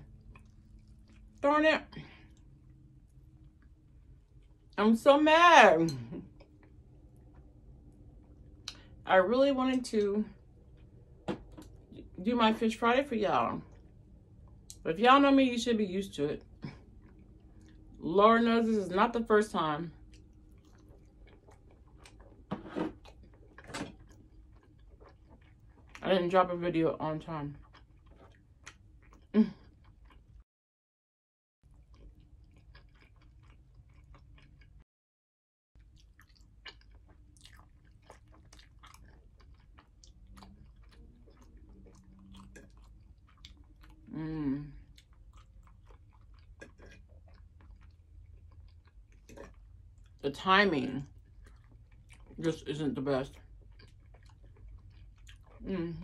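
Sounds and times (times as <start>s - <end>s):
person chewing fried food: 0.0s - 1.4s, 2.0s - 4.8s, 10.4s - 12.0s, 16.5s - 18.0s, 19.9s - 26.0s, 27.5s - 30.4s, 31.6s - 34.8s, 35.8s - 50.2s, 51.0s - 52.6s, 53.3s - 55.7s.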